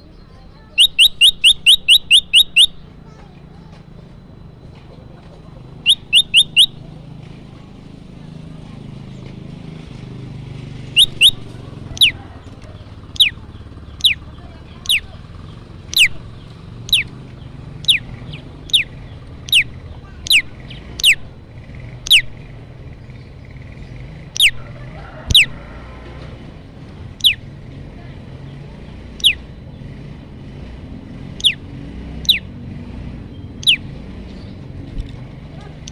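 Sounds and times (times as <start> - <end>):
bird calling: 0.0 - 3.7, 5.7 - 6.9, 10.8 - 26.1, 27.1 - 27.6, 28.9 - 29.9, 31.3 - 32.6, 33.3 - 34.8, 35.6 - 35.9.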